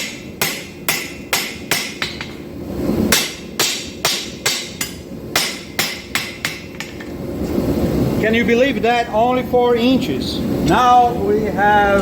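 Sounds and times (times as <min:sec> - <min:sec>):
hammer striking steel on anvil: 0:00.0 - 0:02.5, 0:03.1 - 0:07.2.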